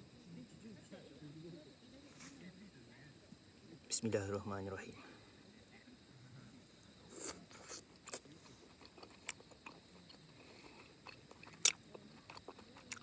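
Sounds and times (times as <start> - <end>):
person chewing steak: 7.2 - 13.0
wet mouth clicks: 11.0 - 13.0.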